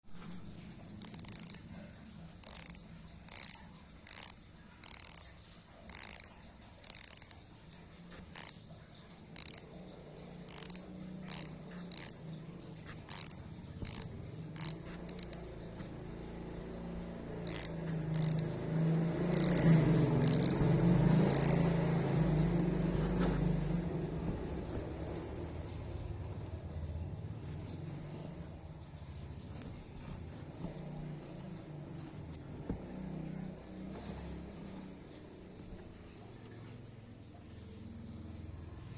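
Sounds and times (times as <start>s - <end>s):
bicycle freehub clicking: 1.0s - 7.5s, 8.1s - 8.7s, 9.3s - 9.8s, 10.4s - 12.2s, 12.9s - 16.0s, 17.3s - 22.6s.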